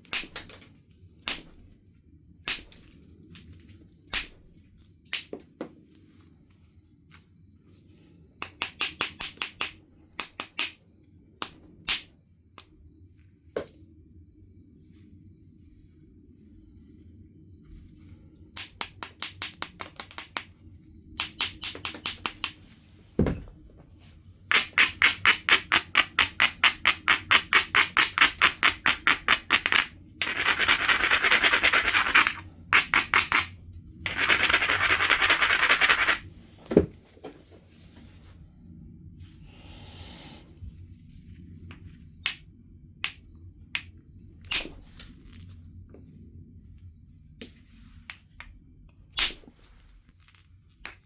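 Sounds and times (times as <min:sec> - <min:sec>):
dull thumps: 0:23.2 - 0:23.9.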